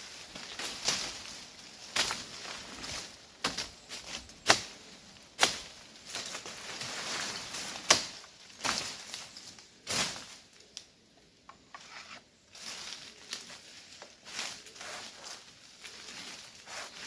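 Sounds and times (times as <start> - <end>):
wood being chopped: 3.4 - 4.7, 7.9 - 8.8.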